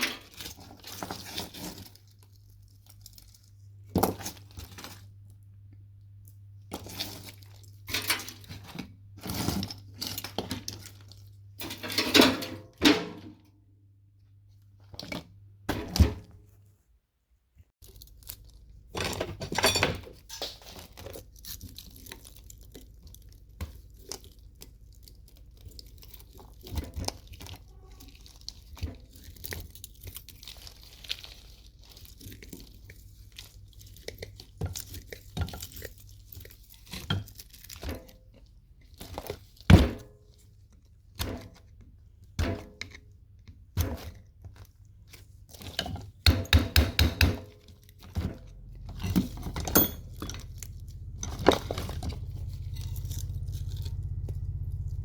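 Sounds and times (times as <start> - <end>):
metal parts knocking and clattering: 11.6 - 13.5, 18.9 - 21.2, 45.6 - 53.5.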